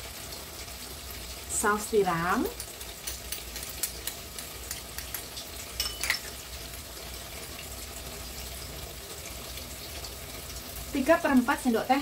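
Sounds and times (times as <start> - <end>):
oil sizzling and crackling: 0.0 - 12.0
metal spoon clinking ceramic bowl: 2.6 - 6.5.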